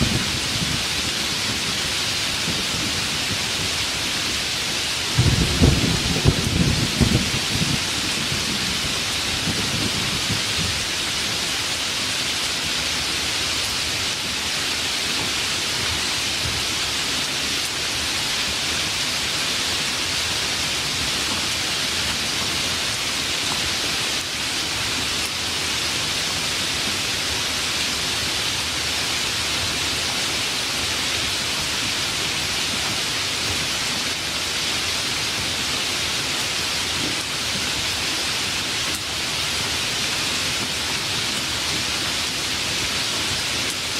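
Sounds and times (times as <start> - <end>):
heavy rain falling: 0.0 - 43.9
low thunder rumble: 5.1 - 10.9.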